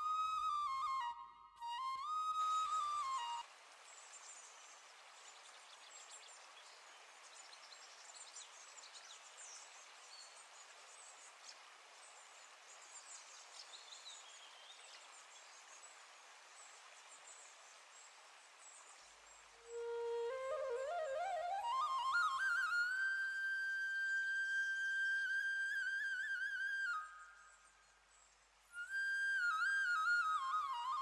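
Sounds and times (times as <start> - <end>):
whistled bird notes: 0.0 - 3.4, 19.6 - 31.0
steady low hiss: 0.0 - 31.0.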